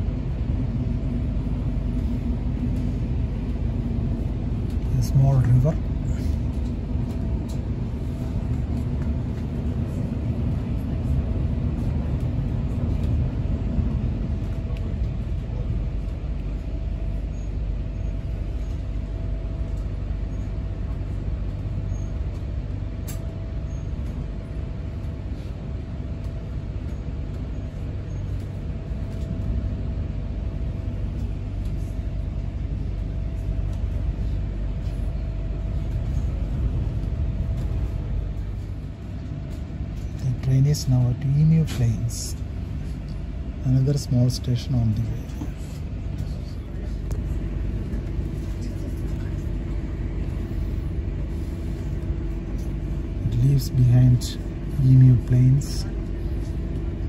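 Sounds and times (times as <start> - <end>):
faint steady whine: 0.0 - 57.0
train low rumble: 0.0 - 57.0.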